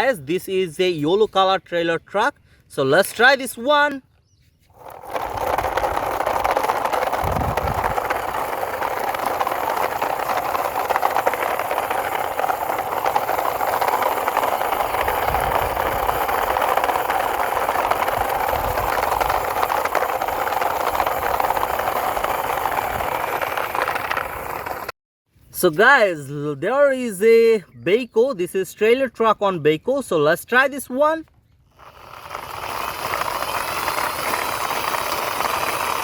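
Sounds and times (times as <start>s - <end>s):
low bumps: 4.7s - 24.9s
plastic toy truck rattling: 4.7s - 24.9s, 31.8s - 36.0s.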